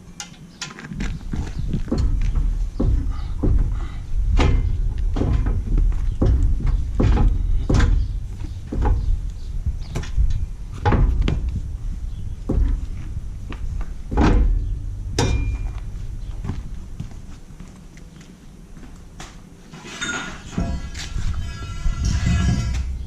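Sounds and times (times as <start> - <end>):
irregular knocks and clunks: 0.2 - 17.3
steady low rumble: 0.9 - 19.6.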